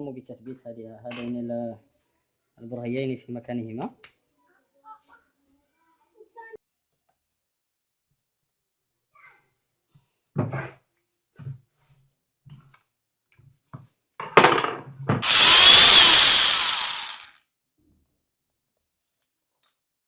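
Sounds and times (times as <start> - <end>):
power drill running: 15.2 - 17.3.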